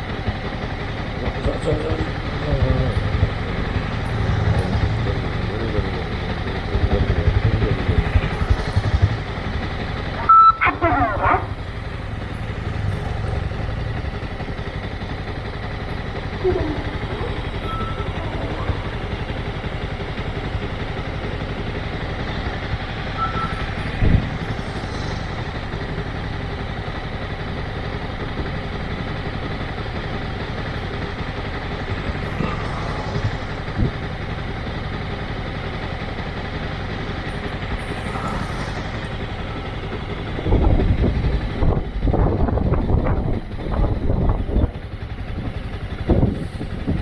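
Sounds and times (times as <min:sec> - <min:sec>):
motorcycle engine running: 0:00.0 - 0:47.0
faint short beeps: 0:10.2 - 0:10.8, 0:16.7 - 0:18.8, 0:23.1 - 0:24.2.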